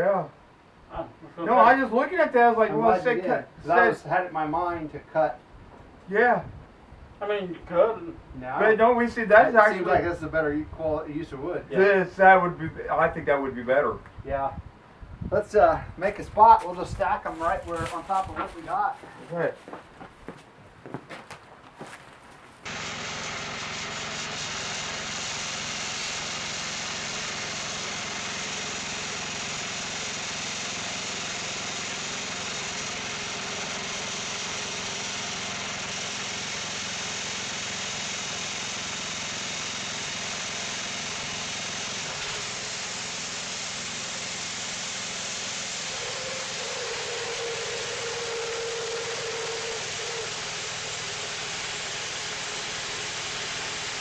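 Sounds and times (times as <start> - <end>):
band sawmill running: 22.6 - 54.0.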